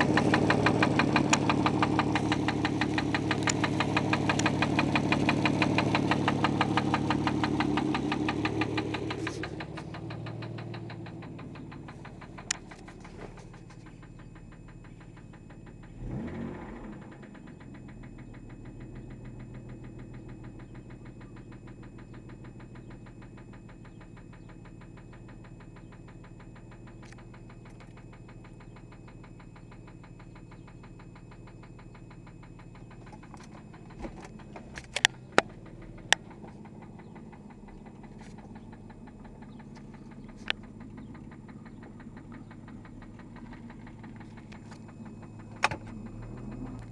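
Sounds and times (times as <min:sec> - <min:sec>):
sharp clicks: 0:00.0 - 0:15.6, 0:32.8 - 0:46.9
engine revving: 0:00.0 - 0:31.2, 0:32.3 - 0:46.9
car engine idling with knock: 0:00.0 - 0:46.9.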